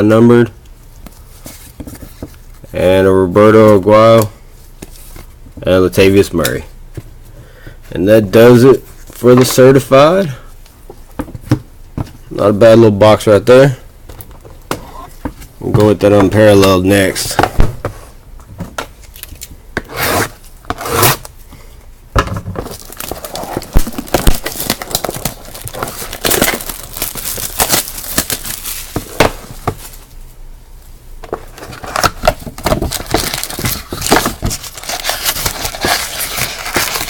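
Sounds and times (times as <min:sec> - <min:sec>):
plastic shrink-wrap crinkling and tearing: 0:22.7 - 0:29.0, 0:31.9 - 0:37.0.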